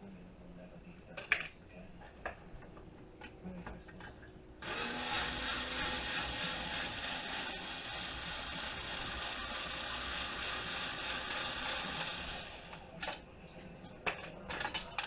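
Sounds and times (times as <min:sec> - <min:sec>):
electric drill-driver running: 0:04.6 - 0:12.9.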